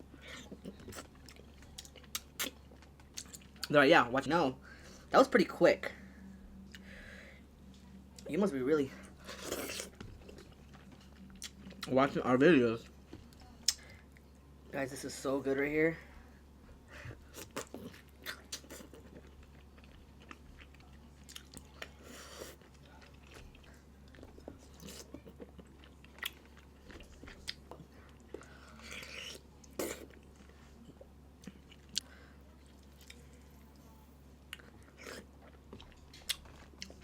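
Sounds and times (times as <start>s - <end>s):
steady low hum: 0.0s - 37.0s
person chewing and biting: 0.4s - 3.7s, 9.3s - 11.9s, 17.3s - 21.7s, 24.7s - 30.3s, 34.5s - 37.0s.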